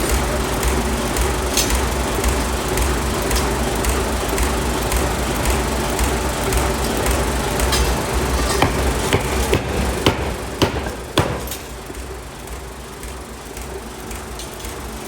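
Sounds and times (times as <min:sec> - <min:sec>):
low machine hum: 0:07.8 - 0:12.0
metallic hammer strikes: 0:08.6 - 0:12.0.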